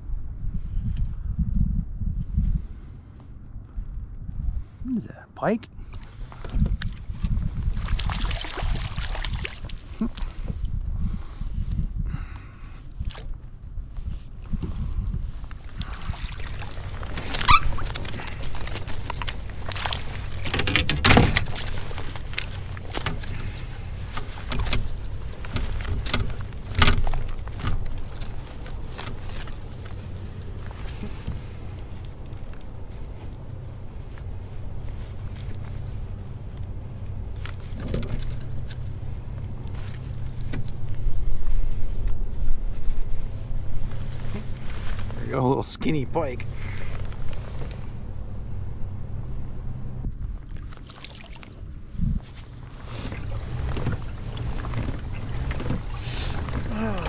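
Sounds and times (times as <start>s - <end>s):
fishing tackle knocks and rattles: 16.4s - 45.2s, 52.8s - 57.0s
steady low rumble: 16.4s - 50.8s.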